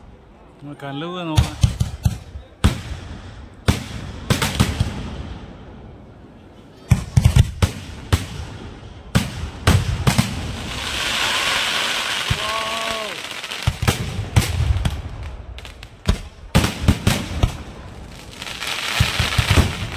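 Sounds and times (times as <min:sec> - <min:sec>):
fireworks bangs: 0:01.4 - 0:05.6, 0:06.8 - 0:19.9
fireworks crackling hiss: 0:09.2 - 0:19.9.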